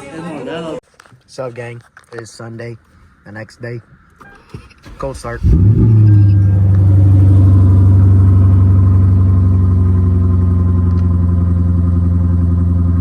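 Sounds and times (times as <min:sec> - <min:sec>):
car engine high idle: 0:04.8 - 0:13.0.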